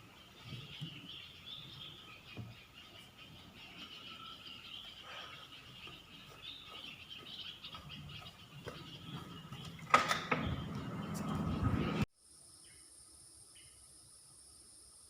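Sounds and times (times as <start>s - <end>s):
animal chirps and calls: 0.0s - 9.8s.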